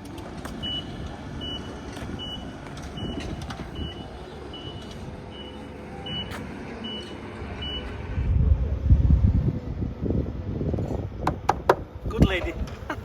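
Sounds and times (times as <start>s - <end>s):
vehicle rumble: 0.0s - 13.0s
reversing alarm beeping: 0.6s - 8.0s.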